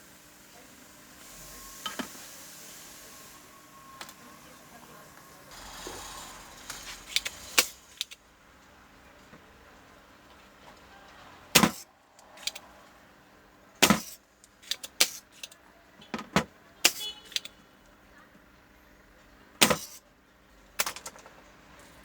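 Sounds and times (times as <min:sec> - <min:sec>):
sharp clicks of small objects: 0:06.7 - 0:08.2, 0:16.8 - 0:17.6.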